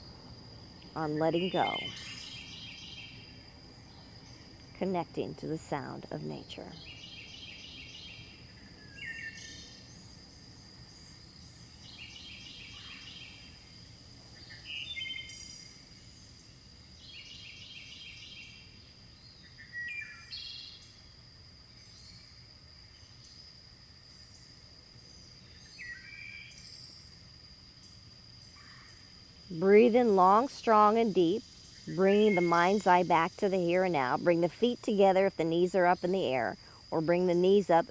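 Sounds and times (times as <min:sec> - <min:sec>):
high insect drone: 0:00.0 - 0:37.9
birds singing: 0:01.3 - 0:03.2, 0:06.7 - 0:10.1, 0:14.4 - 0:15.7.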